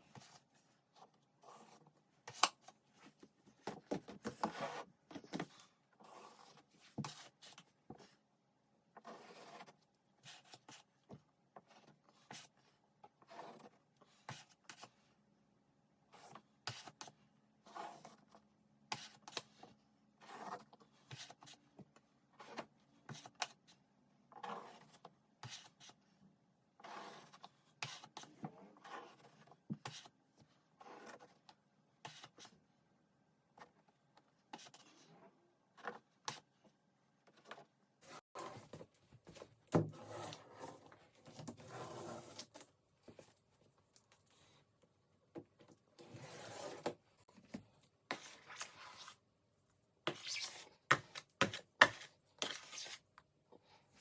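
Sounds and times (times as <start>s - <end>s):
plaster knife scraping: 48.1s - 49.2s, 50.0s - 53.1s.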